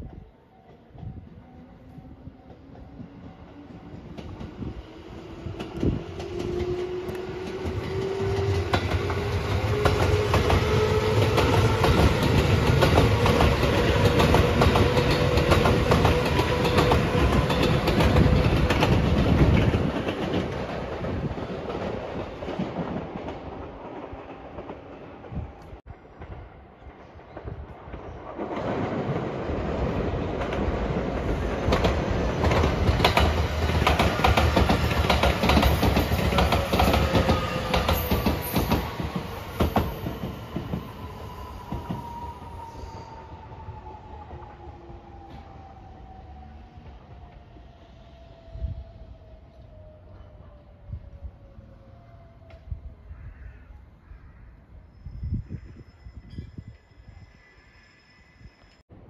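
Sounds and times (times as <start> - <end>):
electric train approaching: 0.0 - 53.1
wheels clacking over rail joints: 30.3 - 40.9.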